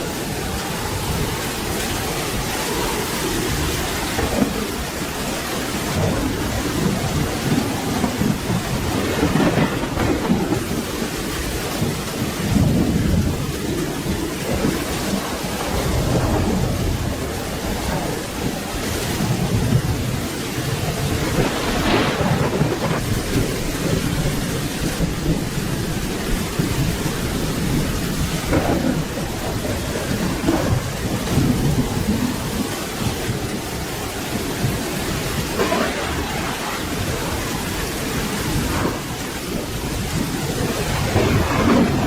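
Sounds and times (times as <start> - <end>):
steady rain: 0.0 - 42.0
thunder rumbling: 0.0 - 42.0.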